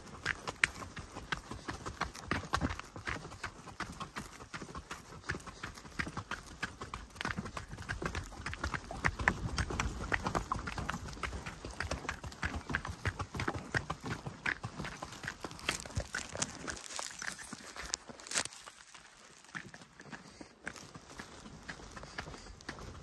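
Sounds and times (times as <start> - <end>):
footsteps on dirt track: 0.0 - 23.0.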